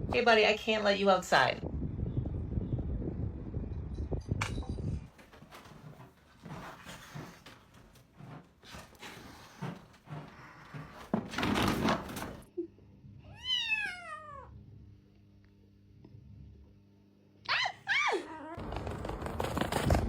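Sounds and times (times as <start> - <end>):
knocks and thumps: 4.5 - 12.5
cat meowing: 13.3 - 14.5.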